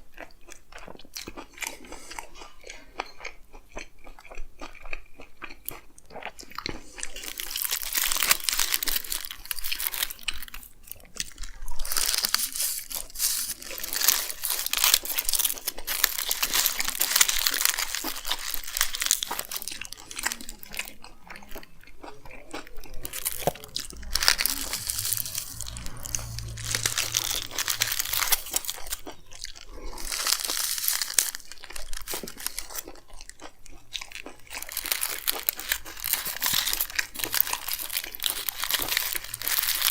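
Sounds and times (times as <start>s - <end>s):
chewing and crunching: 0.0s - 39.9s
wrapper crinkling: 34.6s - 39.9s.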